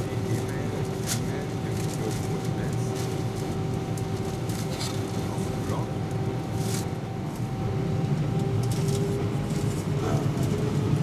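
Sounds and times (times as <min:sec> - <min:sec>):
airliner engine rumble: 0:00.0 - 0:11.0.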